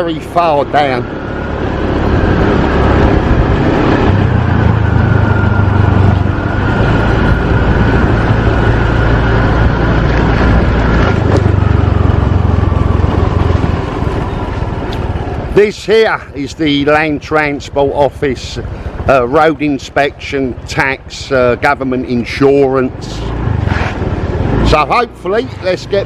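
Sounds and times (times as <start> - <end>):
motorbike engine running: 0.0 - 15.6
road and wind noise: 0.0 - 26.0.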